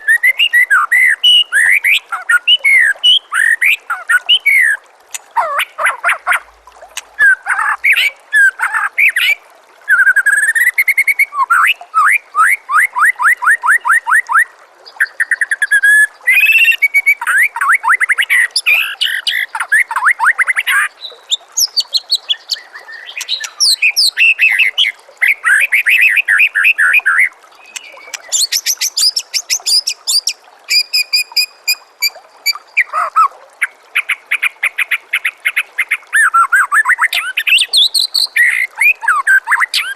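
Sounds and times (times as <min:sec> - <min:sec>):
songbird whistling song: 0:00.0 - 0:04.8, 0:07.2 - 0:33.3, 0:35.9 - 0:39.9.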